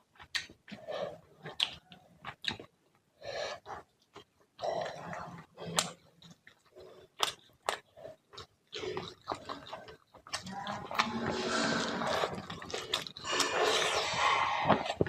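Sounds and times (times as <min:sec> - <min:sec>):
wet chewing: 0:00.0 - 0:15.0
slurping: 0:04.6 - 0:15.0.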